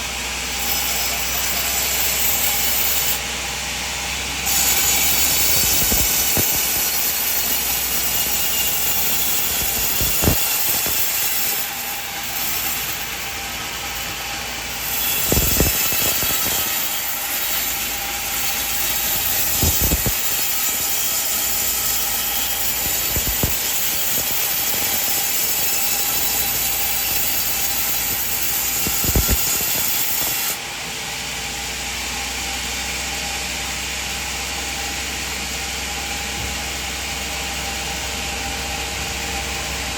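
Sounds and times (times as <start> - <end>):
band saw cutting through log: 0.0 - 30.7.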